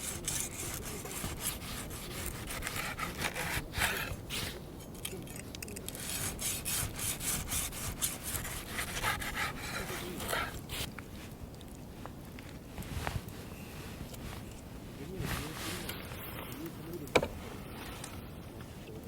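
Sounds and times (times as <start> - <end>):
hand saw cutting wood: 0.0 - 4.6, 5.9 - 10.9.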